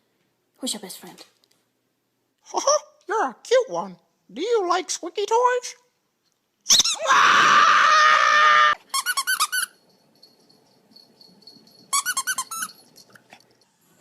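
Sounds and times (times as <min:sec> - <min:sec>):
squeaky dog toy squeaking: 0:06.7 - 0:07.0, 0:08.9 - 0:09.8, 0:11.9 - 0:12.8.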